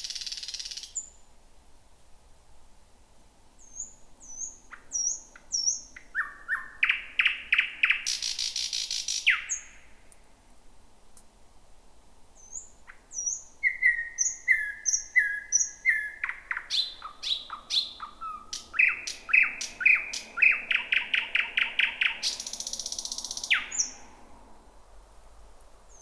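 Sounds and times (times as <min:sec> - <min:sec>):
bird singing: 0:03.6 - 0:09.9, 0:12.4 - 0:24.2.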